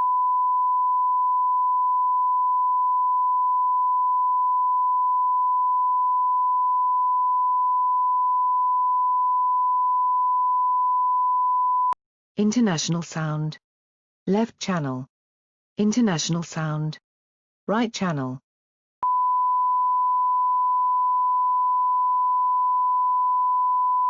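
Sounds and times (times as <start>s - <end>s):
sine-wave tone: 0.0s - 12.0s, 19.0s - 24.0s.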